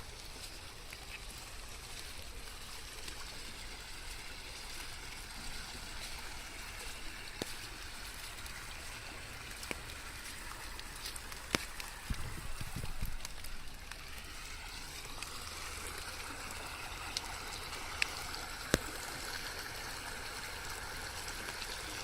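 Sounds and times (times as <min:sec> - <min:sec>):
raindrops ticking: 0:00.0 - 0:22.0
steady rain hissing: 0:00.0 - 0:22.0.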